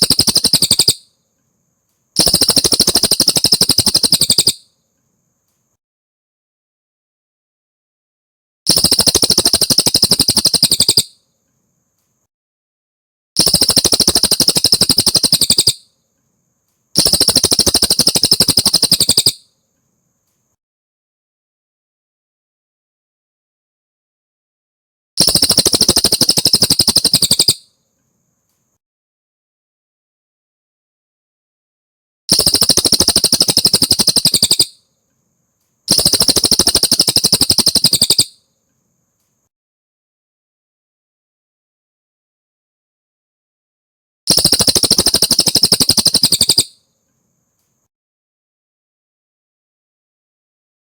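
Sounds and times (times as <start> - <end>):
songbird trilling: 0.0 - 1.1, 2.2 - 4.6, 8.7 - 11.2, 13.4 - 15.9, 17.0 - 19.4, 25.3 - 27.6, 32.3 - 34.8, 35.9 - 38.4, 44.3 - 46.7.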